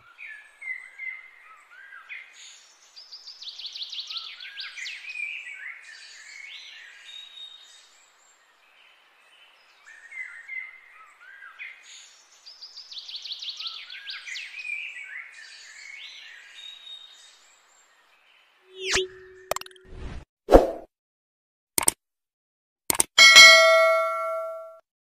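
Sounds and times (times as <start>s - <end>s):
songbirds chirping and trilling: 0.0s - 19.5s.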